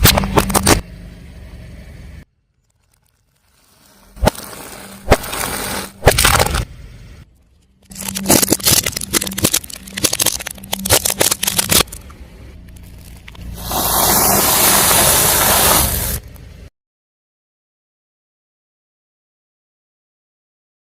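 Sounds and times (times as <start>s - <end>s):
objects cracking under car tyre: 0.0s - 0.8s, 2.4s - 6.7s, 7.4s - 16.5s.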